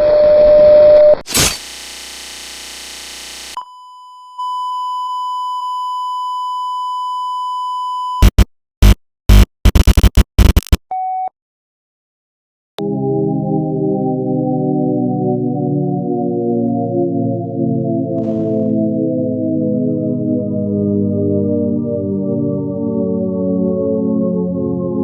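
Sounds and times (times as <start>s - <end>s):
crackling static bursts: 1.2s - 3.6s, 8.2s - 10.8s, 18.2s - 18.7s
loud electronic crash: 1.2s - 3.6s, 18.2s - 19.0s.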